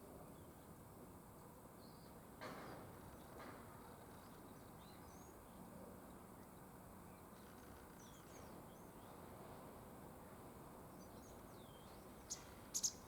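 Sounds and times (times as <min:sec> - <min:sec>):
faint bird chirps: 0:11.6 - 0:13.0.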